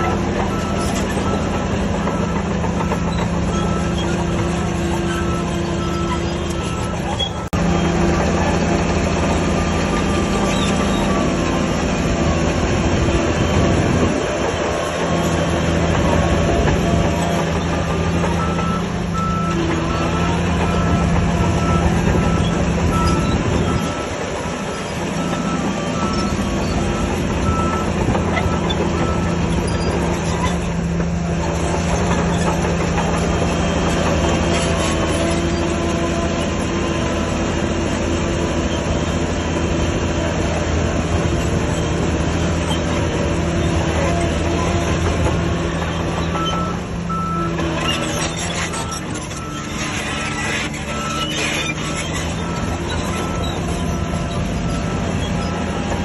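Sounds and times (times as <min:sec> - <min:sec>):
heavy diesel engine running: 0:00.0 - 0:56.0
reversing alarm beeping: 0:00.3 - 0:07.6, 0:18.2 - 0:30.0, 0:46.2 - 0:56.0.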